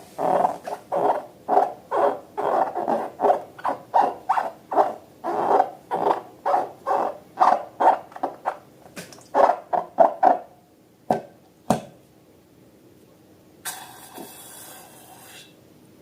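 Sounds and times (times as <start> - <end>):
squeaky squelching balloons and slime: 0.1 - 8.6.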